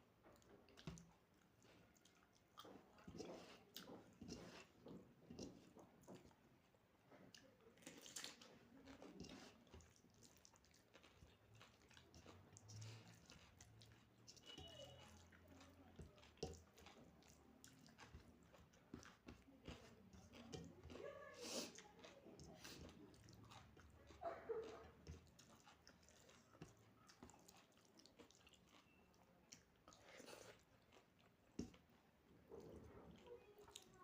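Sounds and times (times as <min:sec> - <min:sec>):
person chewing food: 0:00.0 - 0:34.0.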